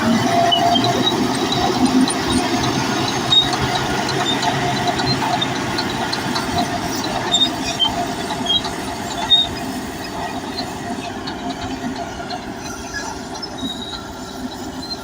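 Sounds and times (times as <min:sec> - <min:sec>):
bulldozer diesel engine running: 0:00.0 - 0:15.0
crawler tracks squeaking and clanking: 0:00.0 - 0:15.0
short high squeals: 0:07.3 - 0:15.0.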